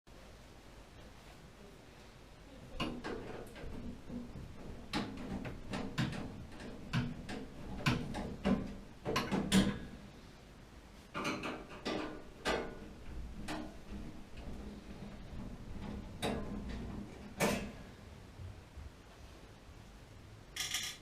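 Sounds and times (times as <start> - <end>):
clicks and knocks of handled objects: 2.8 - 9.8, 20.6 - 21.0.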